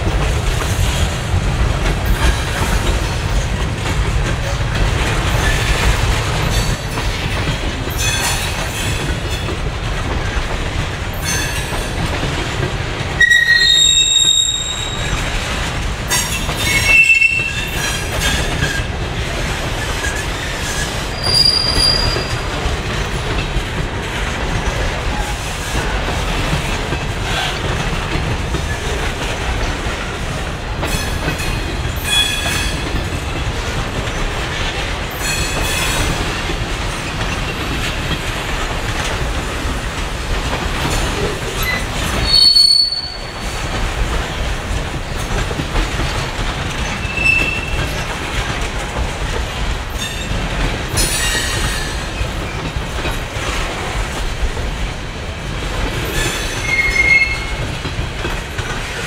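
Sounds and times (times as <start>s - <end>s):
freight train wheels rumbling: 0.0s - 59.0s
high-pitched wheel squeals: 13.2s - 15.1s, 21.2s - 22.3s, 41.6s - 43.3s, 56.6s - 57.6s.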